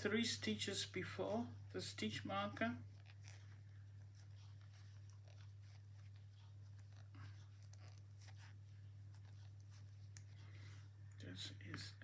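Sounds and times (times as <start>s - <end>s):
knitting needles clicking: 2.6s - 10.4s.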